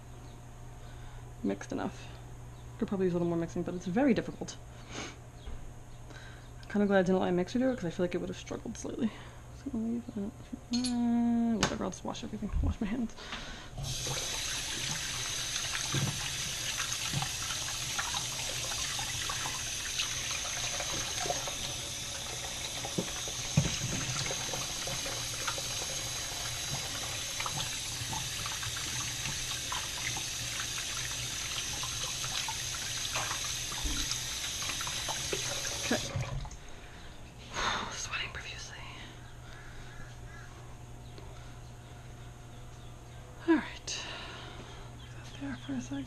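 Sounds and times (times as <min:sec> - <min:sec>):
tap water running into sink: 0:13.8 - 0:36.6.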